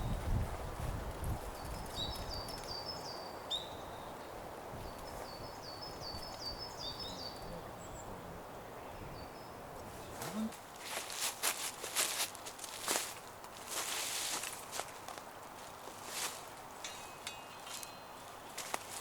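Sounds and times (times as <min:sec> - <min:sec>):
forest ambience: 0:00.7 - 0:19.0
songbird singing: 0:01.1 - 0:11.1, 0:14.6 - 0:19.0.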